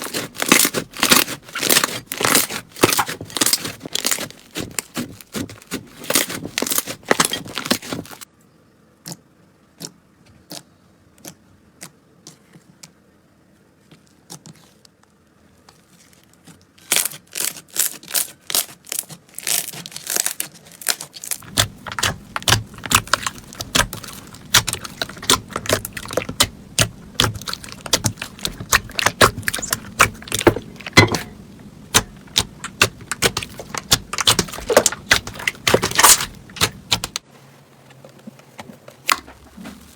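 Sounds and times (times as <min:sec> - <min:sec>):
slime crackling and popping: 0:00.0 - 0:08.2, 0:16.8 - 0:37.2.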